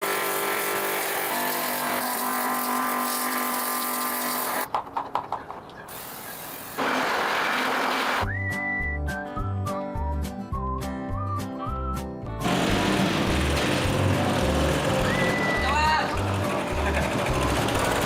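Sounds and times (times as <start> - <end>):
music with whistled melody: 8.2 - 12.4, 14.9 - 17.5
tractor engine running: 12.4 - 18.0.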